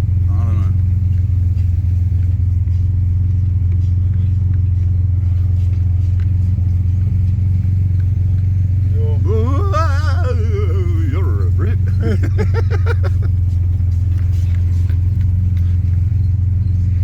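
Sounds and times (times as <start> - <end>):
car engine droning: 0.0 - 17.0
person speaking: 8.9 - 13.3.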